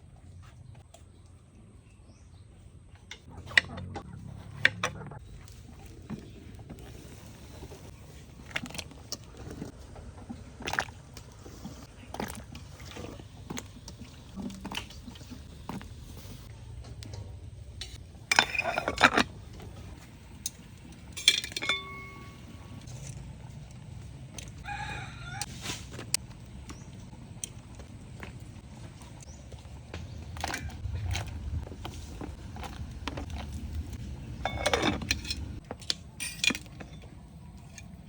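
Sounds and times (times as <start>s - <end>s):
water sloshing: 5.4s - 16.5s
kitchen clatter: 17.8s - 19.9s, 21.1s - 22.8s, 34.4s - 35.6s.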